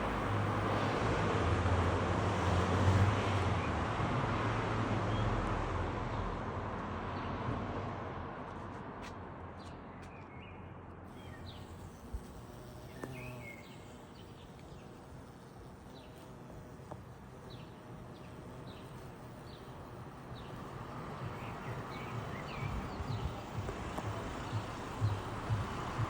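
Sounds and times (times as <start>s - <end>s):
small birds chirping: 9.6s - 26.0s
low outdoor rumble: 18.5s - 26.0s.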